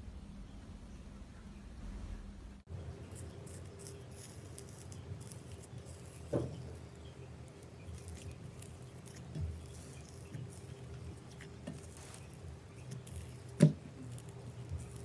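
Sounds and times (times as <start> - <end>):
slime clicking and crackling: 3.1 - 15.0.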